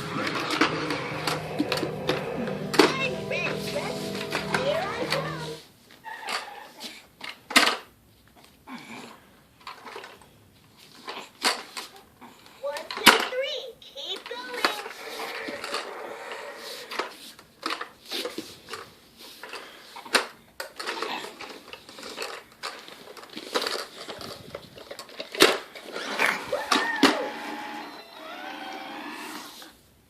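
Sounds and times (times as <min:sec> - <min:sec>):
toy car knocking and clattering: 0:07.2 - 0:07.8, 0:12.8 - 0:14.9, 0:16.9 - 0:26.2.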